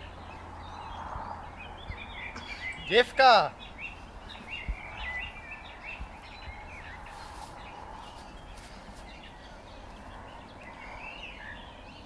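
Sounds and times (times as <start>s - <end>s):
outdoor background hiss: 0.0s - 12.0s
small birds chirping: 0.0s - 12.0s.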